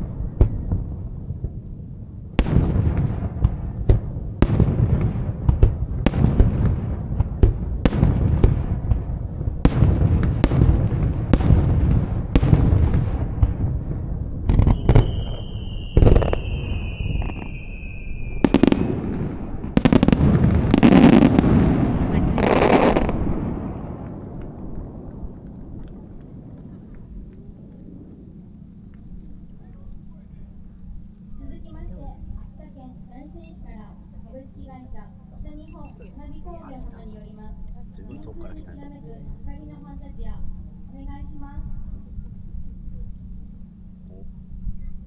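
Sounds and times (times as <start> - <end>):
fireworks bursting with crackle: 0.0 - 28.2
falling whistling tone: 14.6 - 18.5.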